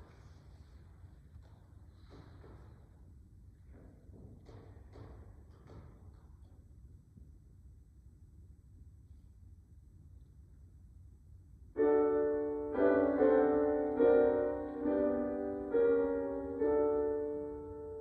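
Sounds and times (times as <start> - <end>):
piano playing slow chords: 11.8 - 18.0.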